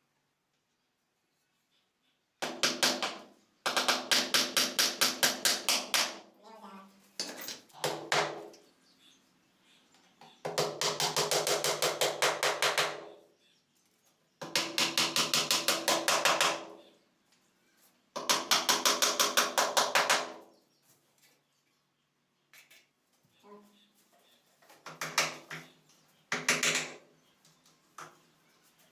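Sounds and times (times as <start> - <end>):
rapid hammer strikes on wood: 2.4 - 6.3, 7.8 - 8.5, 10.4 - 13.1, 14.4 - 16.8, 18.2 - 20.4, 24.8 - 25.6, 26.3 - 27.0.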